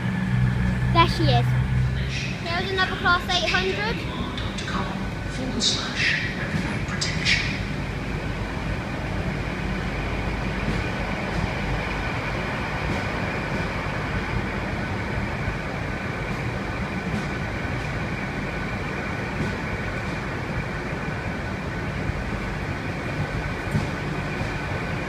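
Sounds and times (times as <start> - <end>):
train low rumble: 0.0 - 25.0.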